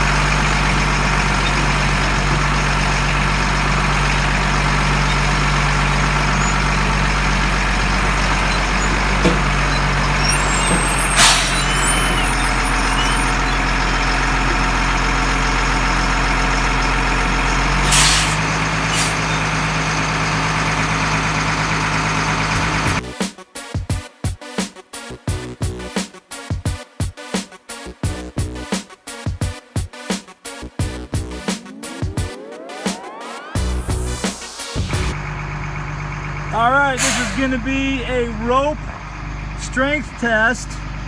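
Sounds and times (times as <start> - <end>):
truck diesel engine running: 0.0 - 23.2, 30.4 - 41.0
sharp air release hisses: 11.1 - 11.8, 17.8 - 19.2, 37.0 - 37.5.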